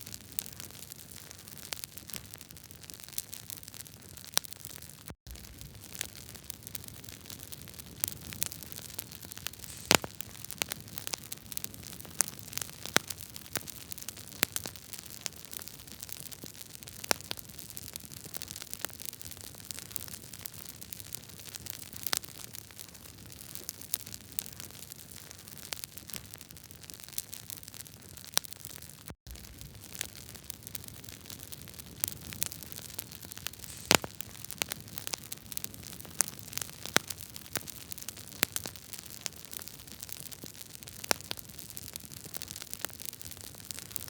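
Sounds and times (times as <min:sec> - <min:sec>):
wood fire crackling: 0:00.0 - 0:44.0
hiss of burning logs: 0:05.3 - 0:15.0, 0:29.3 - 0:44.0.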